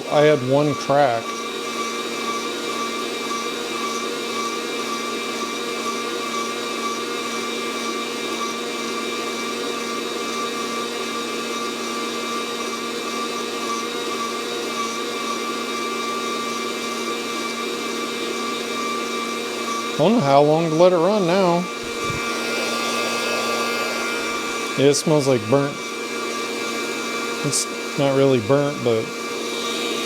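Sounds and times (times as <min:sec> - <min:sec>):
coffee roaster fan whirring: 0:00.0 - 0:03.8, 0:18.1 - 0:30.0
motor whine: 0:17.0 - 0:30.0.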